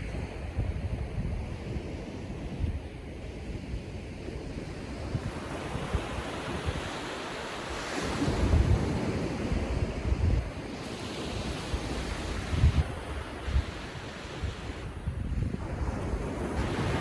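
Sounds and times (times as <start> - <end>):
wind buffeting microphone: 0.0 - 17.0
ocean surf breaking: 5.3 - 15.0, 15.7 - 17.0.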